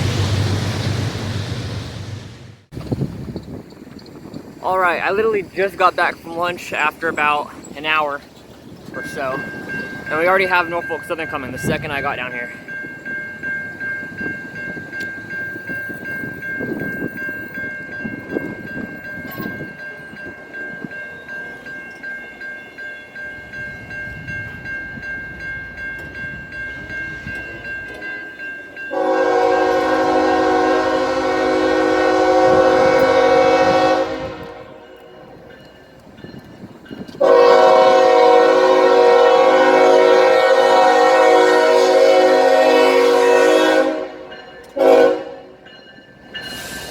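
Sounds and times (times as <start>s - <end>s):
approaching train rumble: 0.0s - 46.9s
locomotive air horn blasts: 28.9s - 35.2s, 37.2s - 45.5s.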